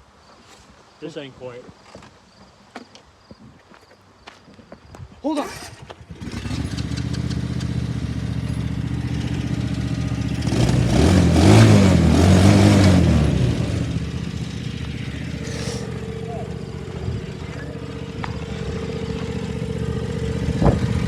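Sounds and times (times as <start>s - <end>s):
small petrol engine revving: 5.4s - 21.0s.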